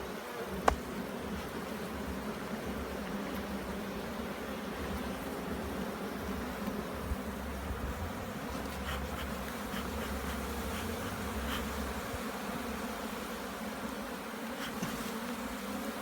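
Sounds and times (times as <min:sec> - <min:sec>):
honey bees buzzing: 0:00.0 - 0:16.0.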